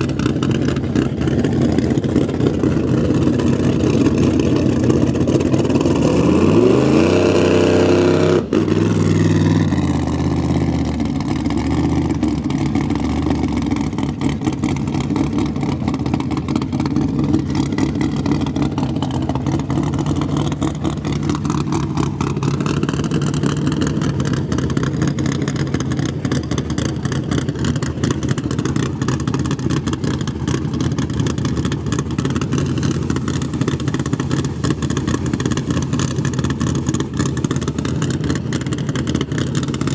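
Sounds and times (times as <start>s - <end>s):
drag racing car engine revving: 0.0s - 39.9s.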